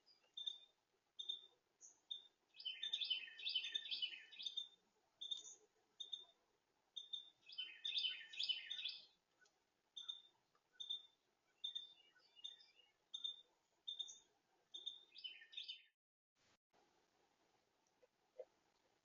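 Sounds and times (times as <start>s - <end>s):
rapid bird twittering: 1.2s - 6.3s, 7.0s - 9.1s, 10.0s - 14.2s.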